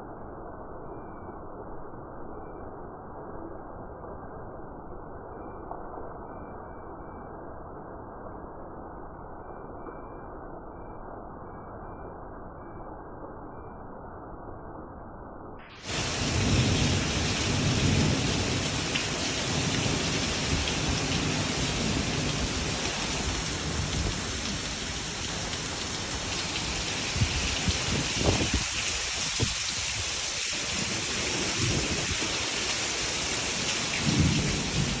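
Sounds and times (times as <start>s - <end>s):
heavy rain pouring: 15.7s - 35.0s.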